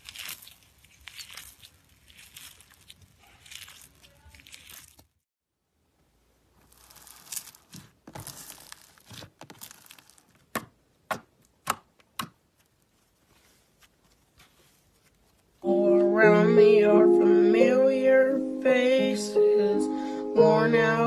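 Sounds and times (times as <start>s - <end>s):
bead-filled slime crunching: 0.0s - 5.2s, 6.6s - 10.6s
slime crackling when stretched: 0.0s - 5.2s, 6.6s - 10.5s.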